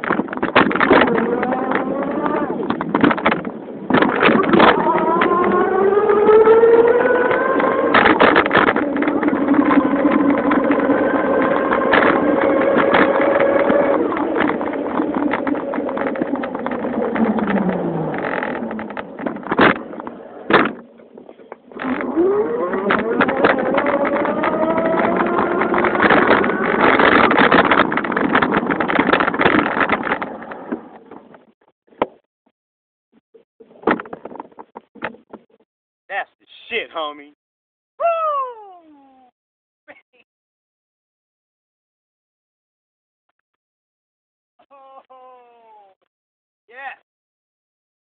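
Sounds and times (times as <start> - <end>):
bike rattles and knocks: 0.0 - 6.3, 6.9 - 32.2, 33.6 - 35.6
motorized bicycle buzzing drone: 1.0 - 2.6, 4.4 - 19.5, 21.7 - 28.1.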